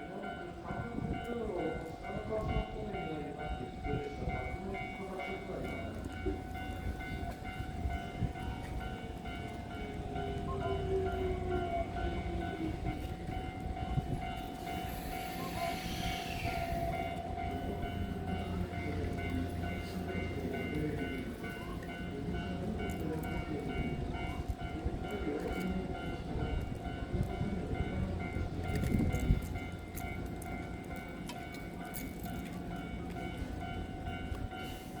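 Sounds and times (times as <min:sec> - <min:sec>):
electric train rumble: 0:00.0 - 0:35.0.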